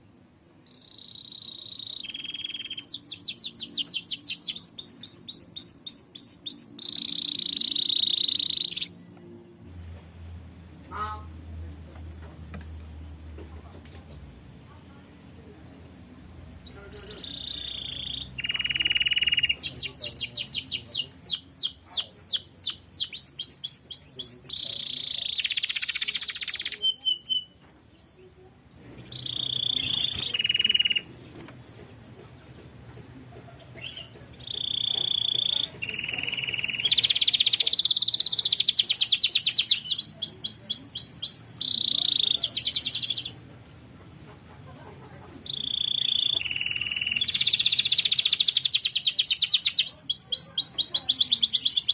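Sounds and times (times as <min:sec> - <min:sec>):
canary singing: 0:00.6 - 0:09.2, 0:16.6 - 0:31.5, 0:33.5 - 0:43.4, 0:45.4 - 0:51.9.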